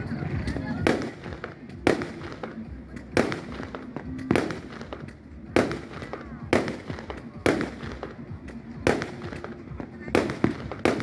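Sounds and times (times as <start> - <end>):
firework pops and crackles: 0.0 - 11.0
fireworks bangs: 0.0 - 11.0.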